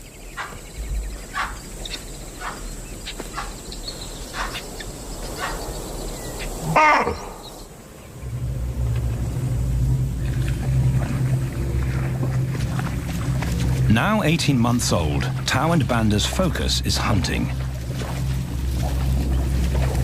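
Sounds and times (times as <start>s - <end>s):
animal alarm calls: 0.4s - 5.7s, 6.4s - 7.6s
low background music: 8.1s - 20.0s.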